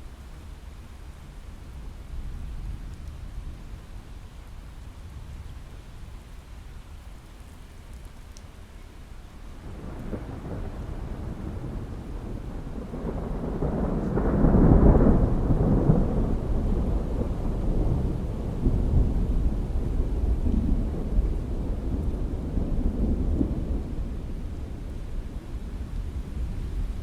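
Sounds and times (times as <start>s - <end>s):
rain falling: 0.0s - 27.0s
thunder rolling: 9.6s - 27.0s.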